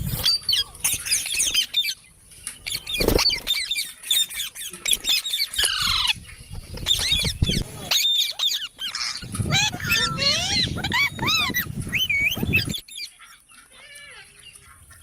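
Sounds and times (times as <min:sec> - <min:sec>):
parrots chirping and squawking: 0:00.0 - 0:15.0.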